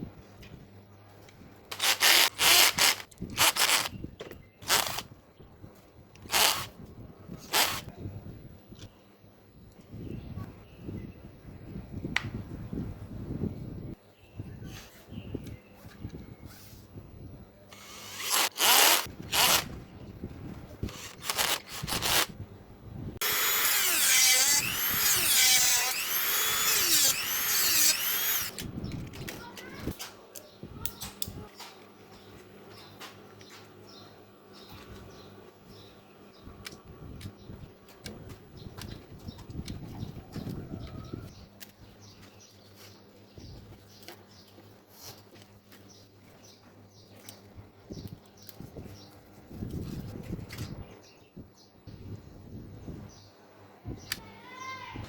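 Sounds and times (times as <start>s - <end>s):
handheld power tool running: 1.7s - 3.9s, 4.6s - 5.0s, 6.3s - 6.7s, 17.7s - 19.7s, 20.8s - 22.4s, 23.2s - 28.7s.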